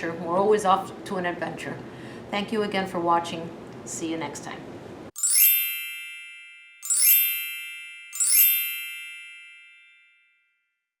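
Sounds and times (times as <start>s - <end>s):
bright chime ding: 5.2s - 10.4s.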